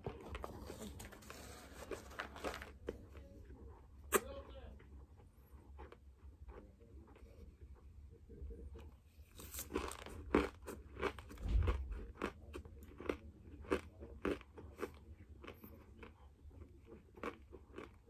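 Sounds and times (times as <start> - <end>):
squeaky crunchy chewing: 9.4 - 18.0.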